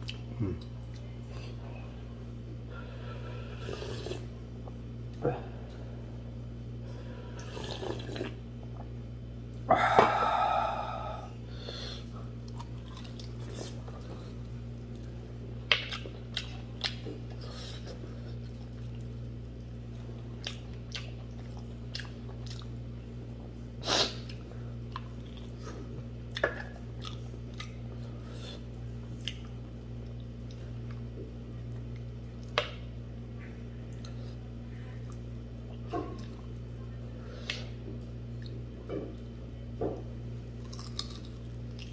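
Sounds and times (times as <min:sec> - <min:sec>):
steady low hum: 0:00.0 - 0:41.9
person chewing food: 0:07.4 - 0:09.0, 0:12.3 - 0:22.8, 0:24.2 - 0:32.6, 0:40.5 - 0:41.9.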